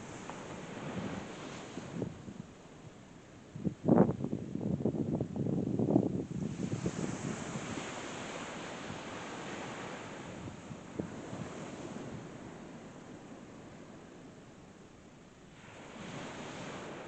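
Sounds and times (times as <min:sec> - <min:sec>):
wind buffeting microphone: 0:00.0 - 0:14.4.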